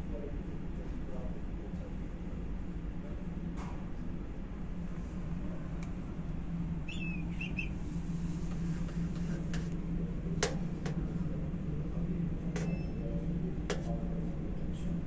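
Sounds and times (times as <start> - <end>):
steady low hum: 0.0 - 15.0
bird chirps: 6.8 - 7.8.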